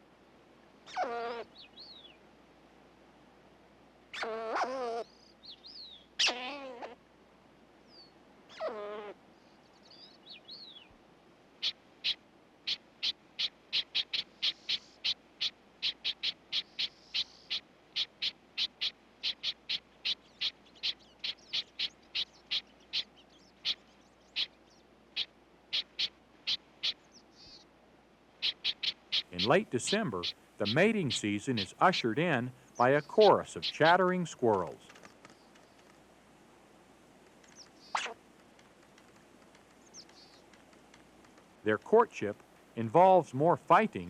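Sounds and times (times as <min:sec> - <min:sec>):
squirrel barking: 0:00.9 - 0:01.5, 0:04.1 - 0:05.1, 0:06.2 - 0:07.0, 0:08.5 - 0:09.1, 0:11.6 - 0:23.8, 0:28.4 - 0:34.0, 0:37.8 - 0:38.2
squirrel screeching: 0:00.9 - 0:01.6, 0:04.1 - 0:05.1, 0:06.2 - 0:07.0, 0:08.5 - 0:09.2, 0:11.6 - 0:23.8, 0:28.4 - 0:30.8, 0:37.8 - 0:38.2.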